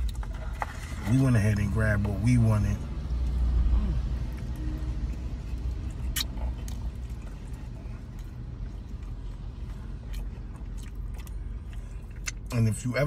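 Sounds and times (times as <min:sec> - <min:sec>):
low car interior rumble: 0:00.0 - 0:13.0
person chewing: 0:03.1 - 0:12.5
mouth clicks: 0:06.1 - 0:06.4.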